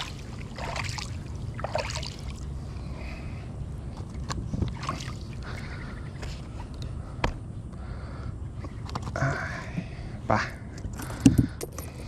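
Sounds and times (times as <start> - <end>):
faint water sounds: 0.0 - 7.2.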